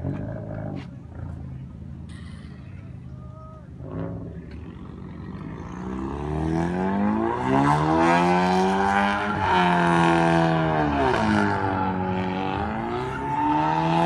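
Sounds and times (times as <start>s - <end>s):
car engine revving: 3.8s - 14.0s.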